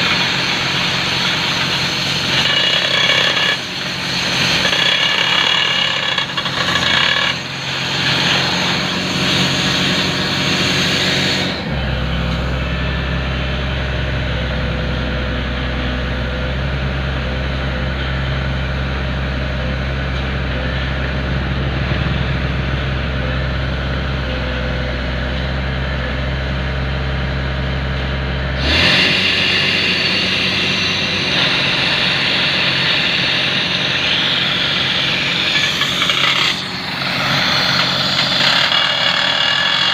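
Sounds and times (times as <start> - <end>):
pneumatic rock drill clattering: 0.0 - 11.8, 28.6 - 39.9
low engine drone: 0.0 - 39.9.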